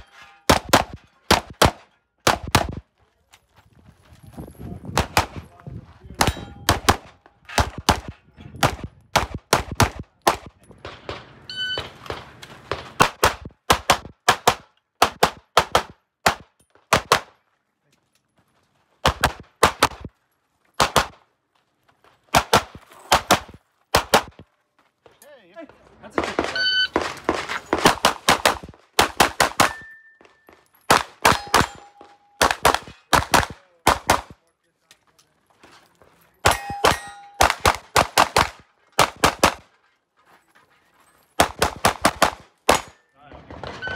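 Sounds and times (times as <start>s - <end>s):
pistol shots: 0.5s - 2.8s, 6.2s - 11.3s, 20.8s - 21.2s, 26.2s - 29.9s, 30.9s - 34.4s, 36.4s - 39.6s, 41.4s - 43.7s
brief ringing tones: 11.5s - 11.9s.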